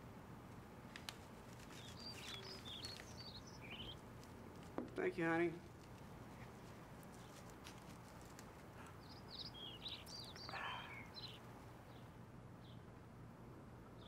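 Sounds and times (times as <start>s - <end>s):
songbird chirping: 1.5s - 13.0s.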